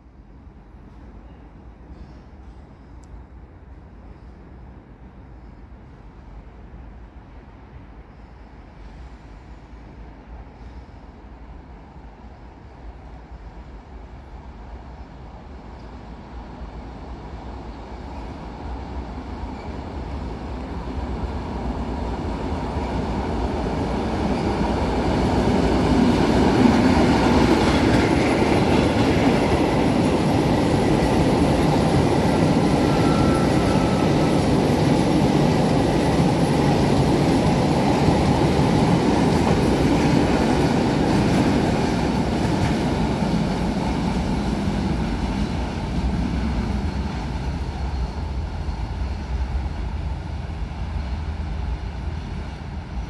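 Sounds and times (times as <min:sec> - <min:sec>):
train running on rails: 0:00.0 - 0:53.0
faint wheel squeal: 0:32.3 - 0:34.5.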